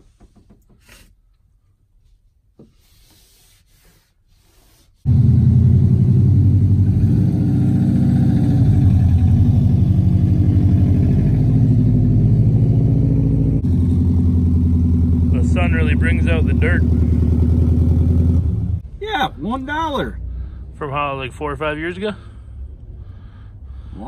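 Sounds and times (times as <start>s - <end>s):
car engine and exhaust: 5.0s - 24.0s.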